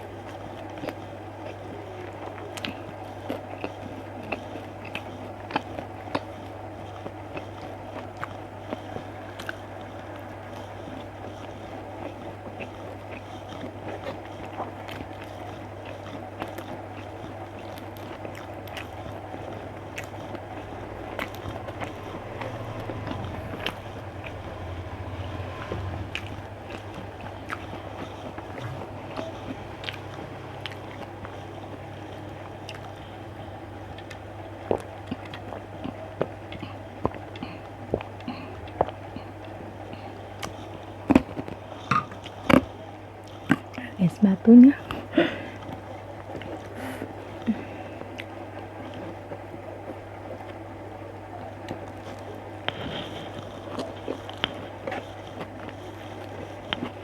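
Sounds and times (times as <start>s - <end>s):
person chewing food: 0.0s - 43.9s, 44.7s - 57.0s
small mouth clicks: 0.2s - 24.8s, 25.6s - 33.2s
low hum: 17.8s - 40.4s.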